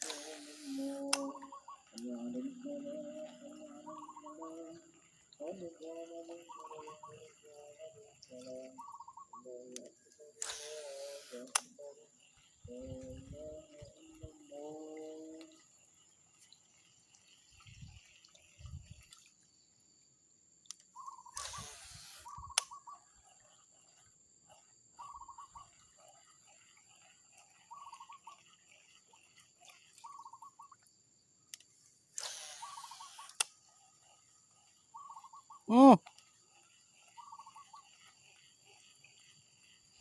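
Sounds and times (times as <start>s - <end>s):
small animal buzzy calls: 0.0s - 19.0s, 20.8s - 40.0s
sharp click: 9.8s - 11.8s, 20.7s - 22.7s, 31.5s - 33.6s.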